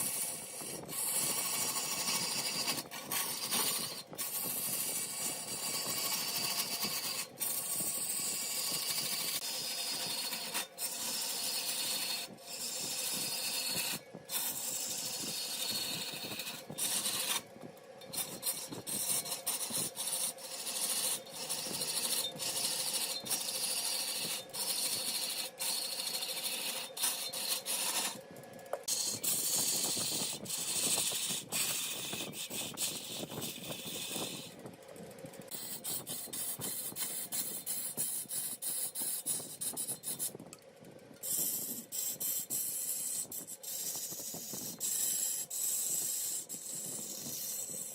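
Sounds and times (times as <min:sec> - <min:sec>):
lathe tool scraping wood: 0:00.0 - 0:34.6, 0:35.4 - 0:40.4, 0:41.2 - 0:47.9
lathe motor hum: 0:00.2 - 0:36.5.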